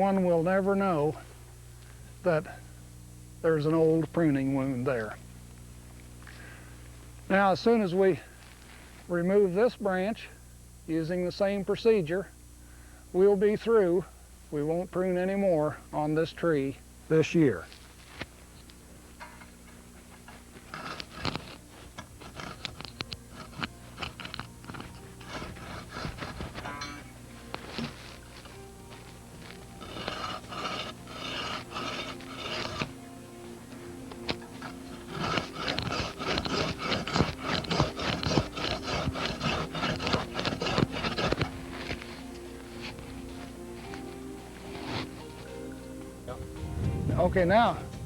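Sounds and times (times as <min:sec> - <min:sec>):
pruning saw scraping through branch: 0:19.3 - 0:45.6.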